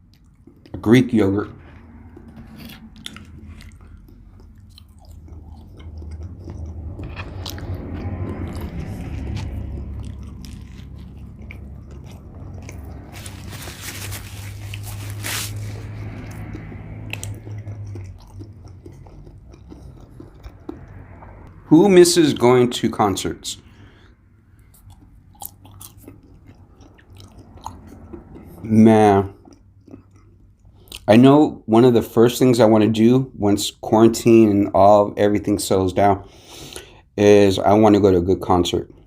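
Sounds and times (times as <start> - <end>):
person chewing food crunchily: 0.0 - 0.8, 1.5 - 21.6, 23.6 - 31.2
wet mouth clicks: 2.1 - 13.1, 15.8 - 21.5.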